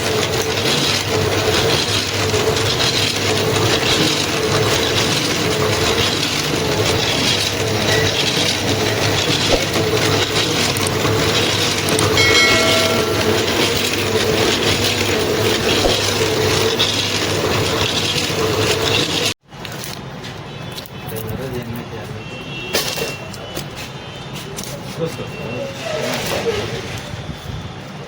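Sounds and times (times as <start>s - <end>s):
machine clattering rattle: 0.0s - 19.3s
horn-like tone: 12.2s - 14.7s.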